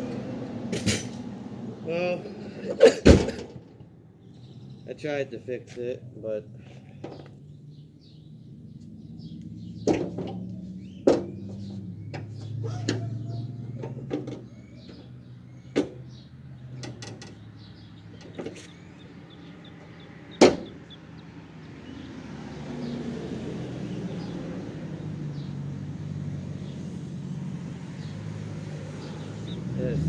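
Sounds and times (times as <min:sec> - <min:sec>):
birds chirping: 0:01.6 - 0:30.0
knocks on steel fender: 0:20.4 - 0:20.8.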